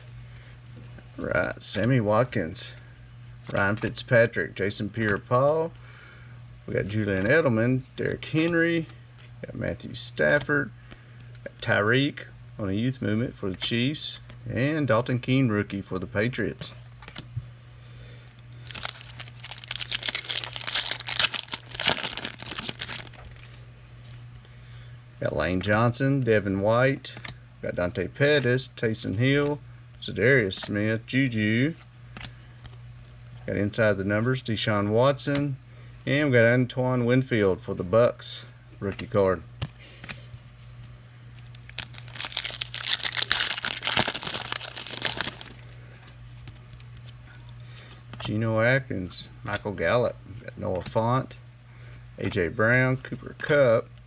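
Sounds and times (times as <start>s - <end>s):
steady low hum: 0.0s - 54.0s
plastic wrapper crinkling and tearing: 18.6s - 23.5s, 41.5s - 45.8s.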